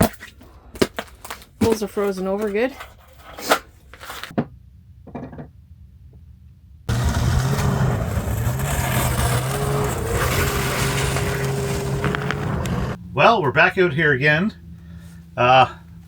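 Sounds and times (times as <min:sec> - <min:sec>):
engine running: 0:06.9 - 0:16.0.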